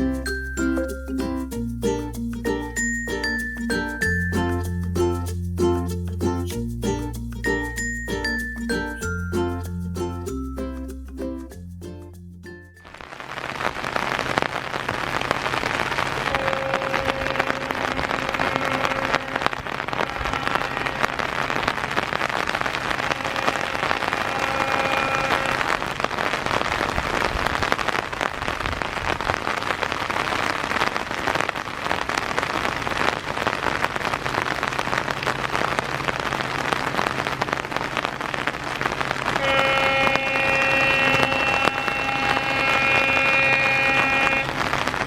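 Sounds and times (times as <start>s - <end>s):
heavy rain pouring: 12.8s - 45.0s.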